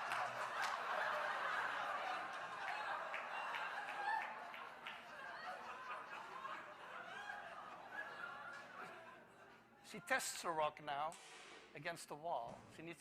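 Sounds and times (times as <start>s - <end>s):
audience laughing: 0.0s - 9.7s.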